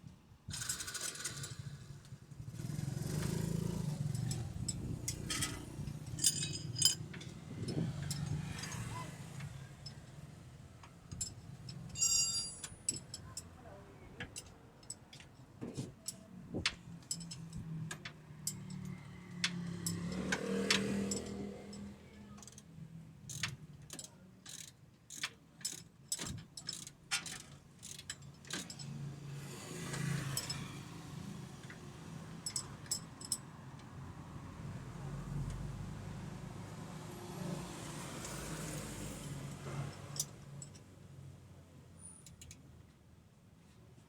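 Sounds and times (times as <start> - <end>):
metallic clicks of hand tools: 14.2 - 29.1, 29.9 - 30.8.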